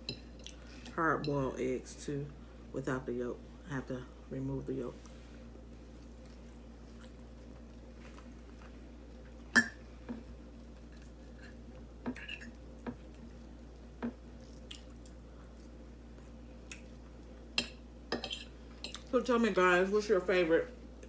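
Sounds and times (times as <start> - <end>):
faint steady hum: 0.0 - 21.0
chewing and mouth clicks: 14.4 - 17.1.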